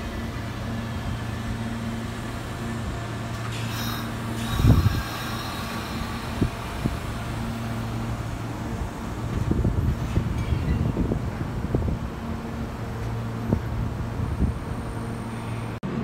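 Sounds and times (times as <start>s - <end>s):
train equipment humming: 0.0s - 16.0s
hiss: 3.4s - 7.9s
wind buffeting microphone: 4.4s - 14.9s.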